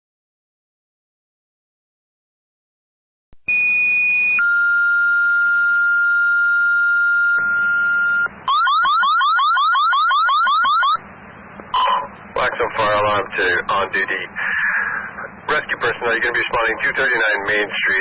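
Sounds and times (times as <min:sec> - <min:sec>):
radio alert tones: 0:03.5 - 0:11.0, 0:11.7 - 0:18.0
radio hiss: 0:11.8 - 0:18.0.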